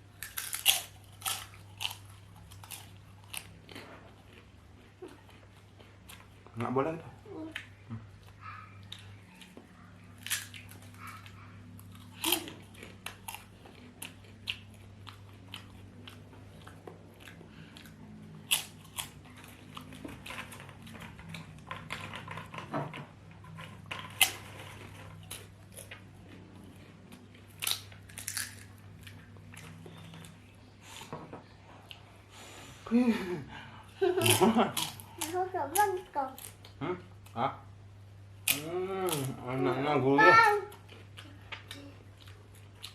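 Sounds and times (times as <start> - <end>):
biting and chewing crunches: 0.1 - 6.9, 8.9 - 22.6, 23.4 - 30.4.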